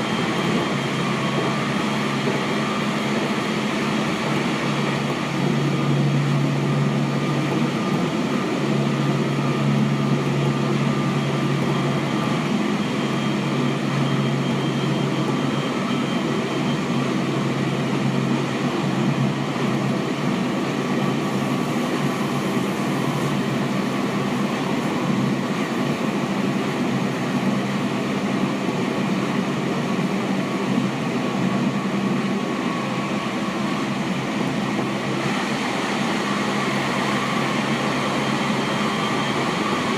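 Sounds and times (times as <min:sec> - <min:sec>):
train wheels rolling on rail: 0:00.0 - 0:19.0.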